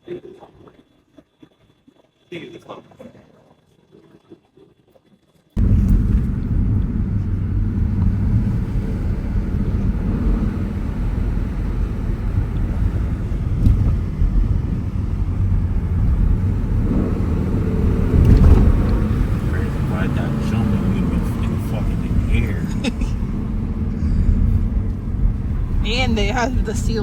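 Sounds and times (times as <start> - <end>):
car road rumble from inside: 5.6 - 27.0.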